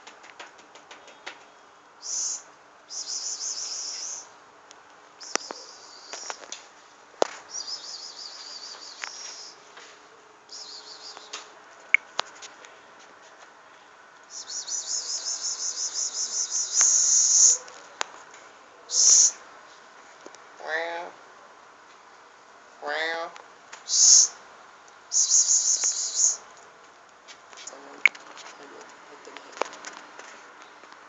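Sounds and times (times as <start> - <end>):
high-pitched chirping trills: 2.0 - 4.3, 7.5 - 9.6, 10.5 - 11.4, 14.3 - 17.6, 18.9 - 19.4, 23.9 - 24.4, 25.1 - 26.4.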